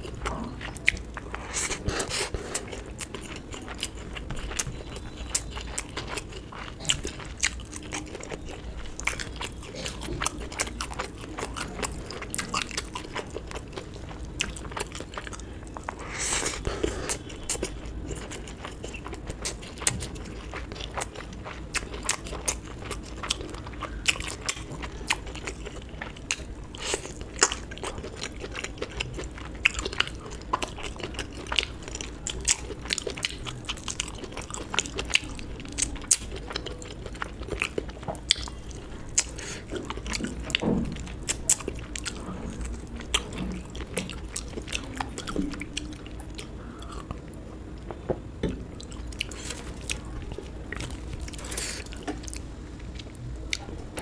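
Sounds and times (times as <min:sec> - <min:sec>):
person chewing and crunching: 0:00.0 - 0:54.0.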